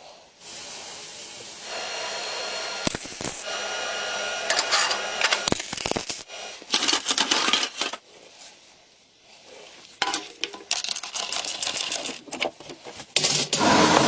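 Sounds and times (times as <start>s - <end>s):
small hard objects clicking: 10.0s - 12.5s.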